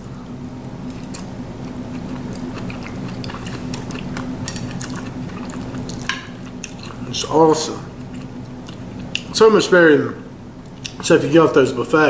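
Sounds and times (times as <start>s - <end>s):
low room hum: 0.0s - 12.0s
person chewing food: 0.8s - 7.2s, 7.8s - 9.4s, 10.7s - 11.1s.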